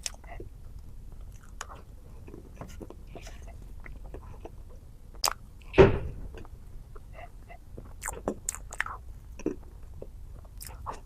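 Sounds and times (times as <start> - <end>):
heavy thump: 5.8 - 6.4
mouth sounds and small clicks: 7.8 - 11.0.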